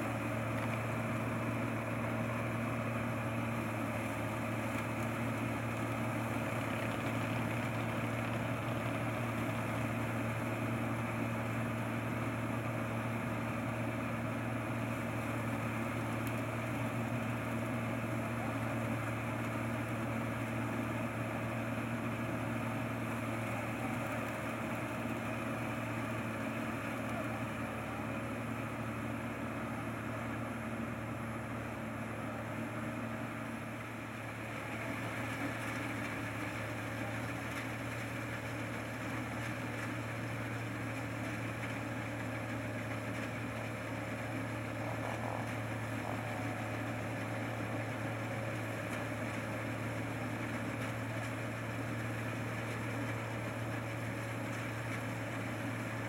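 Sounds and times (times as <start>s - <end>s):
harvester engine droning: 0.0s - 56.0s.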